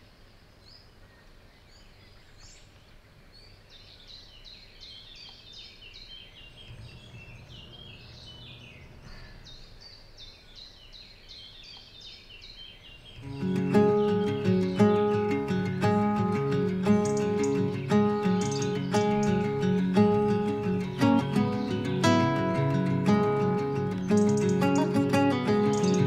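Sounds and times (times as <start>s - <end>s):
birds chirping: 0.0s - 26.0s
faint low hum: 6.4s - 10.6s
acoustic guitar music: 13.2s - 26.0s.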